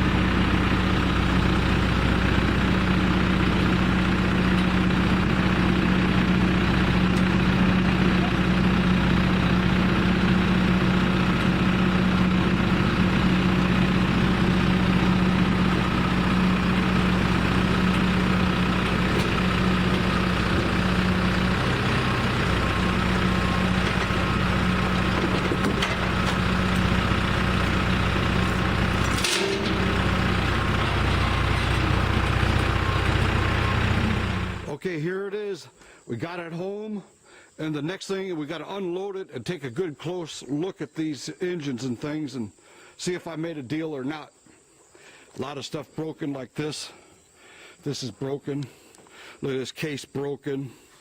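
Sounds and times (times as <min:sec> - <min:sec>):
vehicle engine humming: 0:00.0 - 0:34.8.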